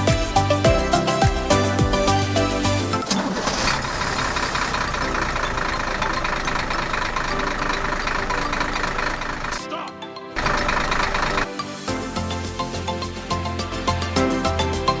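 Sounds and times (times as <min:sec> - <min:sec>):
music: 0:00.0 - 0:15.0
small tractor motor knocking: 0:03.1 - 0:09.6, 0:10.4 - 0:11.5.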